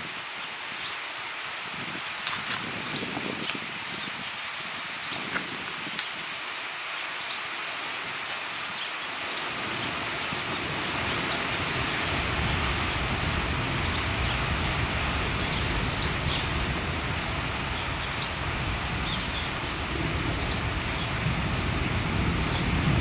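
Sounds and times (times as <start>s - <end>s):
rain hissing: 0.0s - 23.0s
low uneven thunder rumble: 9.8s - 23.0s.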